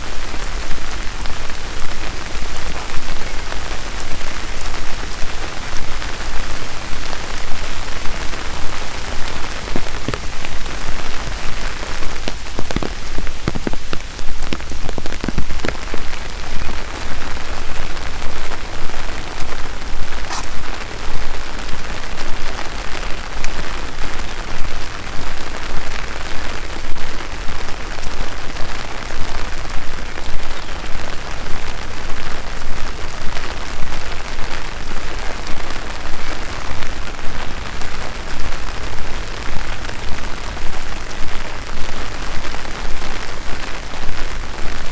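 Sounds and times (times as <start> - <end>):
steady rain: 0.0 - 44.9.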